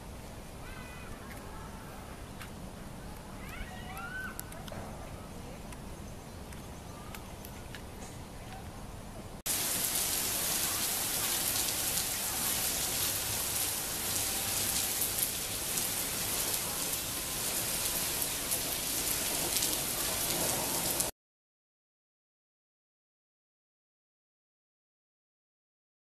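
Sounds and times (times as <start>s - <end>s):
heavy rain pouring: 9.5s - 21.1s.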